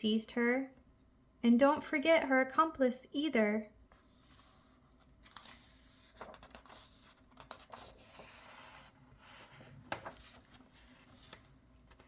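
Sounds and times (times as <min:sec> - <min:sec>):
paper page rustling: 0:03.9 - 0:12.0.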